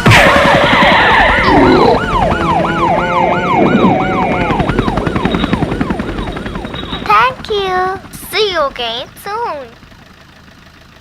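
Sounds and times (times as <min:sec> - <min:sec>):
siren on fast yelp: 0:00.0 - 0:07.5
low rumble: 0:00.1 - 0:07.1.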